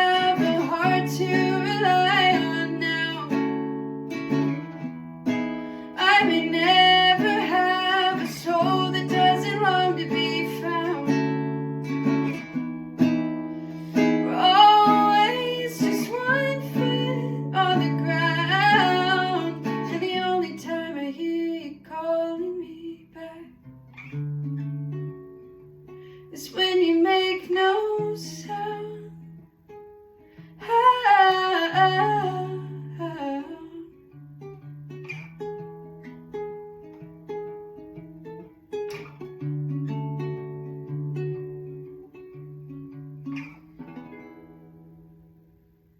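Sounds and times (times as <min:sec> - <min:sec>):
woman singing: 0:00.0 - 0:04.7, 0:05.8 - 0:12.1, 0:13.9 - 0:23.7, 0:26.2 - 0:29.4, 0:30.6 - 0:34.2
acoustic guitar strumming: 0:00.0 - 0:21.0, 0:28.0 - 0:45.4.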